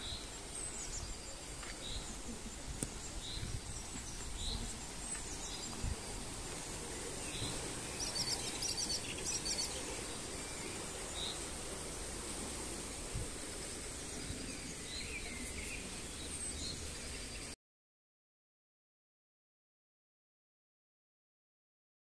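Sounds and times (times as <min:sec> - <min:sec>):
small birds calling: 0:00.0 - 0:11.7.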